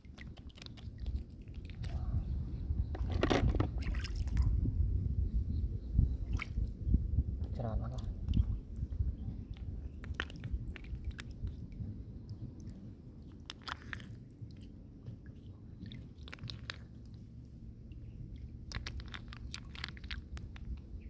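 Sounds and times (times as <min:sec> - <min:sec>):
hands rummaging in wet mud: 0:18.7 - 0:20.8.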